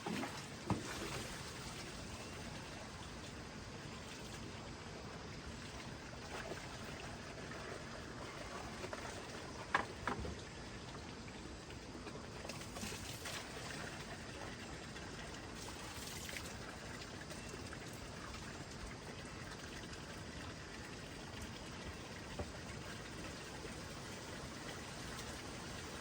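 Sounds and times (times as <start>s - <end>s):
faint splashes or drips: 0.0s - 3.4s, 11.2s - 26.0s
steady water noise: 0.0s - 26.0s.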